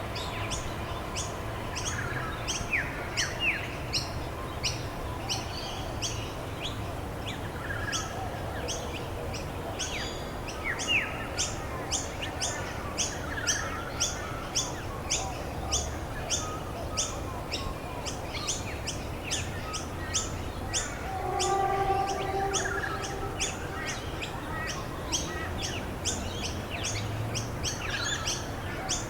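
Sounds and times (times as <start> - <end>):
bird chirping: 20.8 - 24.4.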